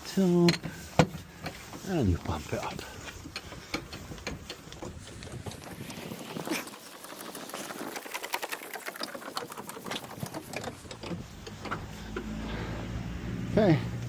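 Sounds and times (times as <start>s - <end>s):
hydraulic hand pump clicking: 3.2s - 12.2s.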